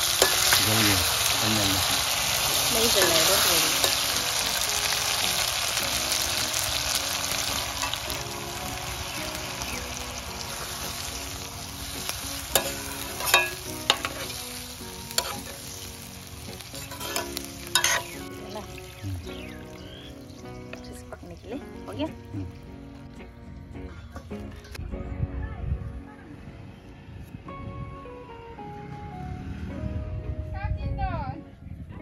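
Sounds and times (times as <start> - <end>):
curry sizzling in a pot: 0.0 - 23.1.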